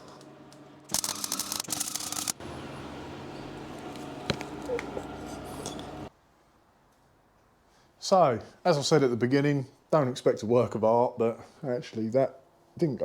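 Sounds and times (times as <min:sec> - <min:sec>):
welder arc crackling: 0:00.2 - 0:06.1
quiet hum: 0:02.4 - 0:06.1.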